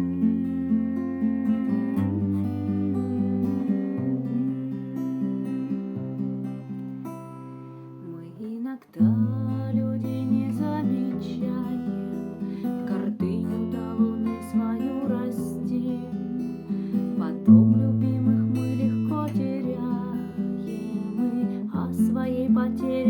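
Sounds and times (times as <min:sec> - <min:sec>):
acoustic guitar strumming chords: 0:00.0 - 0:23.0.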